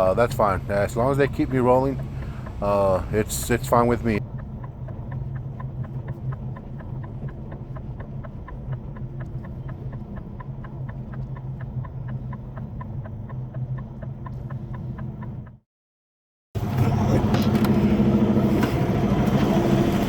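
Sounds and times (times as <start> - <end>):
diesel truck engine running: 0.0 - 15.6, 16.6 - 20.0
fast even clicking: 0.1 - 15.6.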